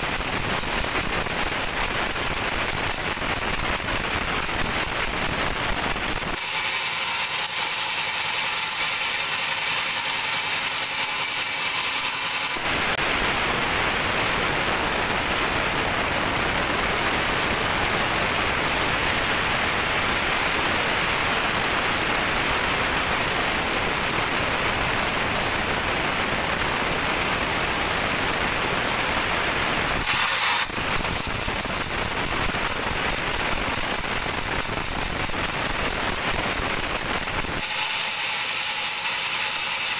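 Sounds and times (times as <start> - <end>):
band saw hissing through log: 6.4 - 12.6, 30.0 - 31.0, 37.6 - 39.9.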